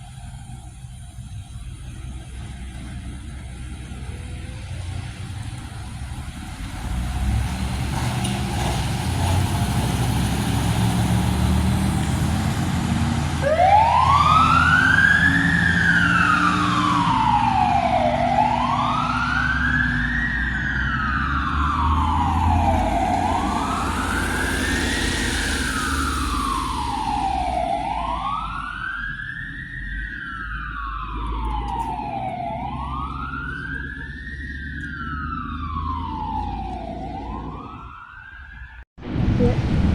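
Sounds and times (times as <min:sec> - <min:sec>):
heavy vehicle engine rumbling: 0:00.0 - 0:39.9
siren wailing: 0:13.0 - 0:39.9.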